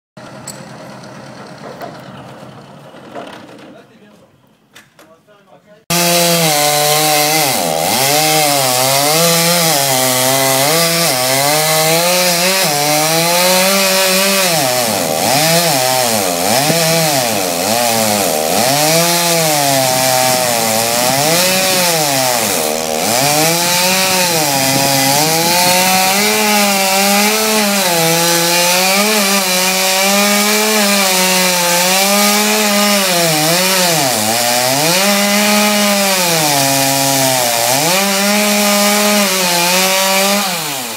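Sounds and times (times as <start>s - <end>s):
chainsaw sawing through wood: 5.9s - 40.9s.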